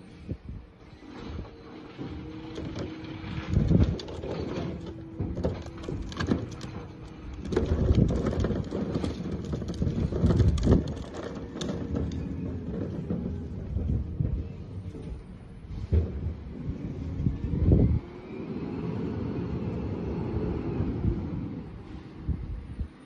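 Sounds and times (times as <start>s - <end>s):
truck engine and hydraulics whine: 0.0s - 23.0s
metal clanks and heavy thuds: 1.4s - 17.1s.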